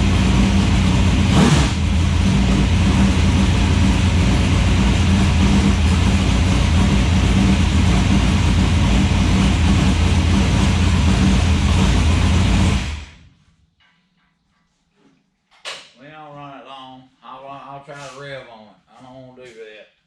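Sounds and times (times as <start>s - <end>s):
diesel excavator engine running: 0.0s - 13.3s.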